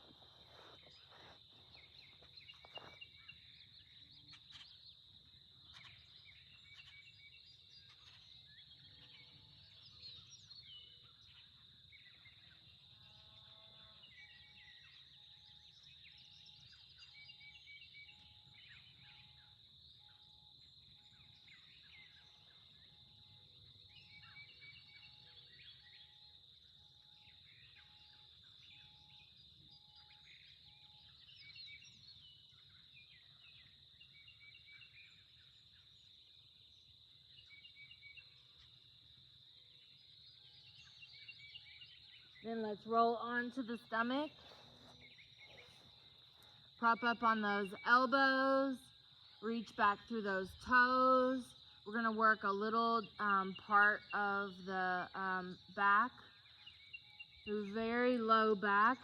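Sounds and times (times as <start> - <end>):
steady high-pitched hum: 0.0 - 59.0
birds chirping: 39.6 - 59.0.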